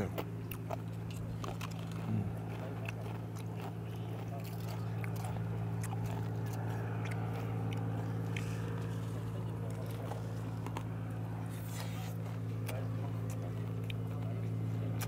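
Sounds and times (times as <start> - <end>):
crisp chewing and biting: 0.0 - 15.0
steady low hum: 0.0 - 15.0.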